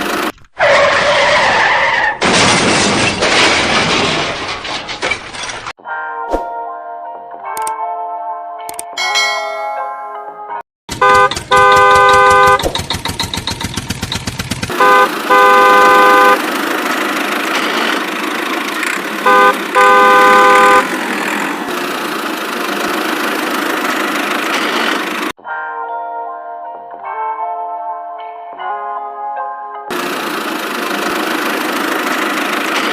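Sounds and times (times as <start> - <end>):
engine running: 0.0 - 0.4, 10.9 - 25.4, 29.9 - 32.9
vehicle horn honking: 10.9 - 12.7, 14.7 - 16.4, 19.2 - 21.0.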